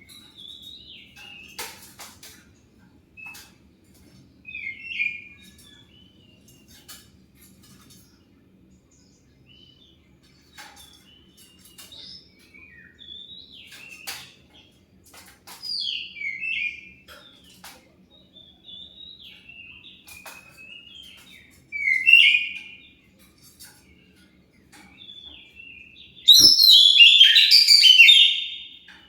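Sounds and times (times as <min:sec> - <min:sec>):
bird whistling phrases: 0:21.8 - 0:22.6, 0:26.3 - 0:28.8
bird clicking notes: 0:26.3 - 0:28.6.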